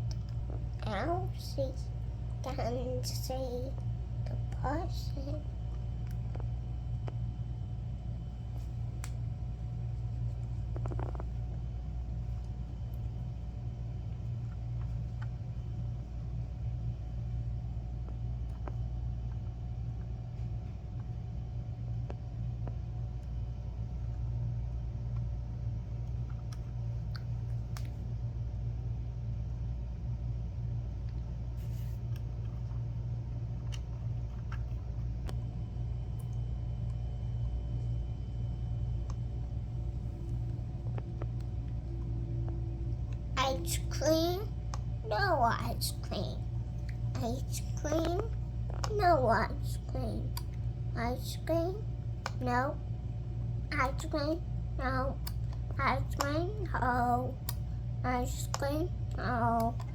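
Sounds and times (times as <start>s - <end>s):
steady low hum: 0.0s - 59.9s
faint clicks and taps: 18.0s - 21.2s, 25.1s - 28.1s, 31.0s - 35.5s, 40.2s - 52.6s, 55.0s - 59.9s.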